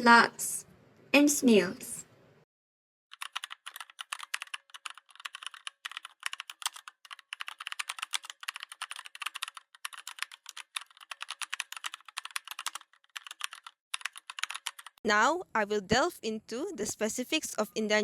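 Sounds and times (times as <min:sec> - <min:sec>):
rapid keyboard typing: 0:03.1 - 0:15.0.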